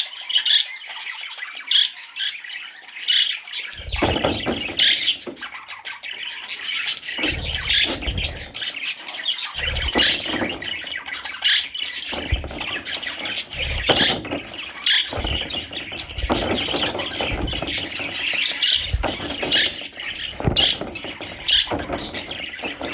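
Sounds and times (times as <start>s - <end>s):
budgerigar chicks squawking: 3.1s - 22.9s
low rumbling: 3.8s - 5.3s, 7.2s - 8.6s, 12.0s - 22.9s
low thumps: 3.8s - 5.5s, 7.1s - 8.7s, 9.6s - 22.9s.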